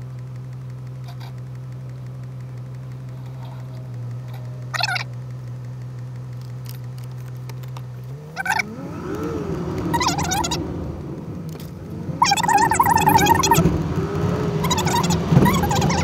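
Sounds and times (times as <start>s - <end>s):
car engine idling and revving: 0.0s - 16.0s
high-pitched squeaks: 3.2s - 5.1s, 8.4s - 8.7s, 9.9s - 10.6s, 12.2s - 13.7s, 14.6s - 16.0s.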